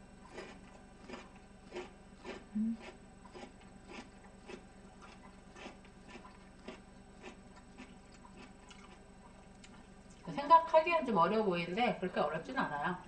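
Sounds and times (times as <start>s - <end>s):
person chewing food: 0.2s - 10.3s.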